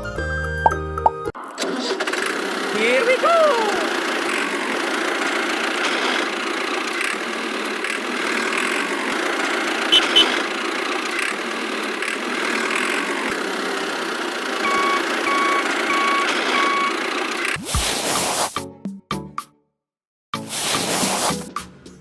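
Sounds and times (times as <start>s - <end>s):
toy vehicle mechanical hum: 1.4s - 18.6s
reversing beeps: 14.6s - 17.0s.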